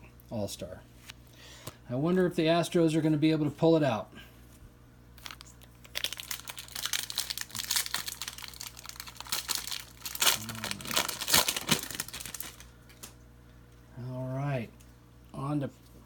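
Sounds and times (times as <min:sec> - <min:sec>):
wrapper tearing and crinkling: 0:05.2 - 0:13.2.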